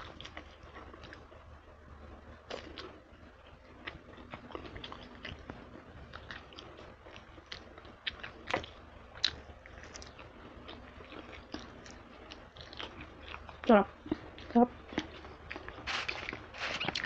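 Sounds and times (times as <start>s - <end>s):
loud crunches: 15.0s - 17.0s.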